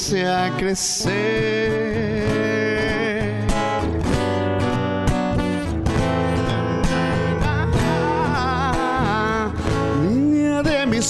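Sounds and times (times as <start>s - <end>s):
acoustic guitar strumming: 0.0s - 11.0s
wavering melody line: 5.4s - 9.4s
sustained chords: 5.4s - 9.5s.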